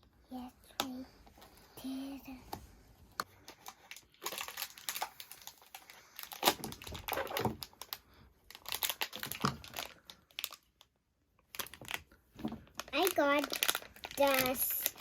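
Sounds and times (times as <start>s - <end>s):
plastic wrapping crinkling and tearing: 3.4s - 15.0s.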